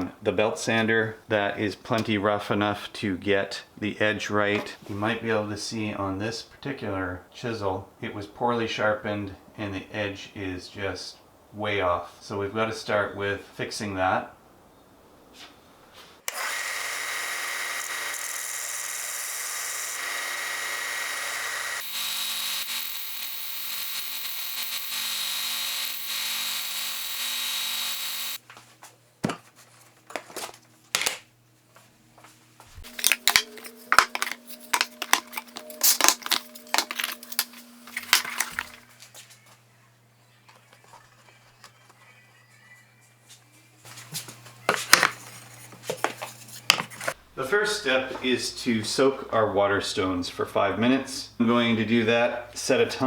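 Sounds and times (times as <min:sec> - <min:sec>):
belt sander grinding steel: 0:16.2 - 0:28.4, 0:32.8 - 0:38.8.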